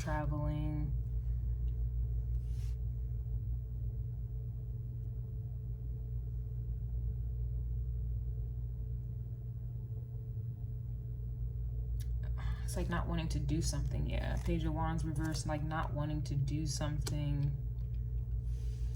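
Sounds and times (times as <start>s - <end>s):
faint hum: 0.0s - 18.9s
low background rumble: 0.0s - 18.9s
soft rustle: 18.4s - 18.9s.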